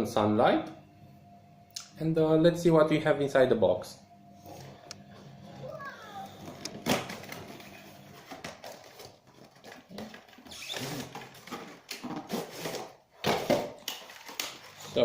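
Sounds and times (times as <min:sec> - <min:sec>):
cardboard and paper rustling: 0:06.3 - 0:15.0.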